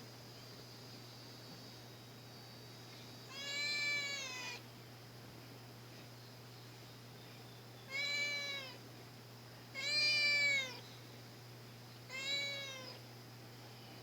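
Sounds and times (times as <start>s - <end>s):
cat meowing: 3.3s - 4.6s, 7.9s - 8.8s, 9.8s - 10.8s, 12.1s - 13.0s.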